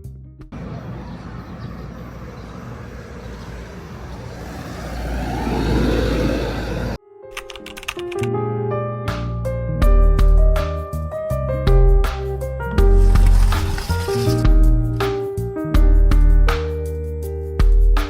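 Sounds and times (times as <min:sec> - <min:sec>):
traffic: 0:00.5 - 0:07.0
vehicle passing: 0:00.5 - 0:07.0.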